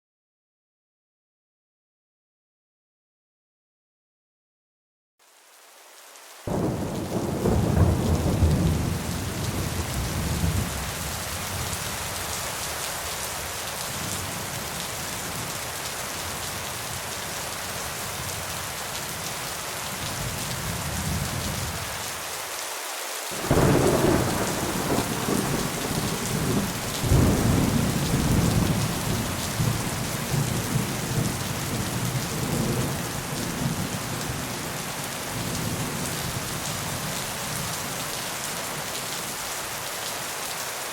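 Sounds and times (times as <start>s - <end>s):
steady rain falling: 5.2s - 40.9s
loud thunderclaps: 6.5s - 10.8s, 23.4s - 33.0s
thunder rumbling: 6.5s - 10.8s, 23.4s - 33.9s.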